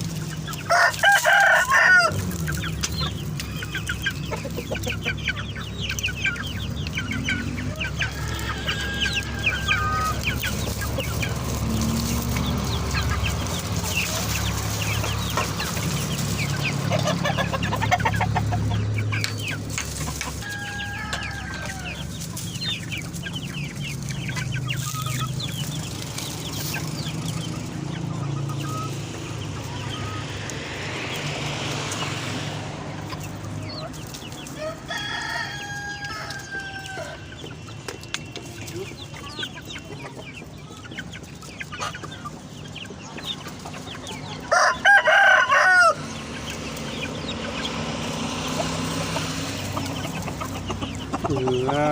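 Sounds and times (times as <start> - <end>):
chickens clucking: 0.0 - 51.9
rooster crowing: 0.6 - 2.3, 7.3 - 10.4, 20.2 - 22.2, 34.6 - 37.3, 44.4 - 46.2.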